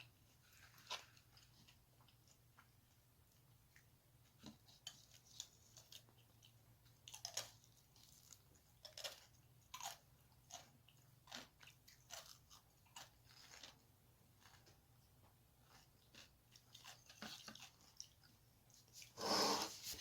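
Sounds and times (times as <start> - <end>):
person chewing crunchy food: 0.0 - 20.0.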